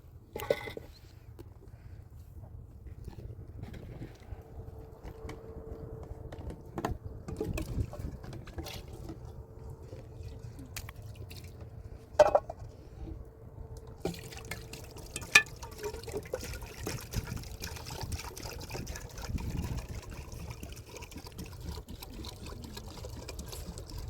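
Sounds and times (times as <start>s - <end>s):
water dripping and pouring: 7.3s - 11.8s, 13.8s - 24.0s.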